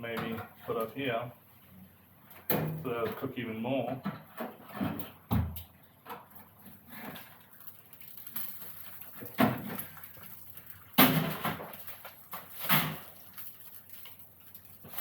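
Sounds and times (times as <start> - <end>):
sharp knocks on barbecue grill: 2.4 - 2.8, 4.0 - 6.3, 11.0 - 13.1.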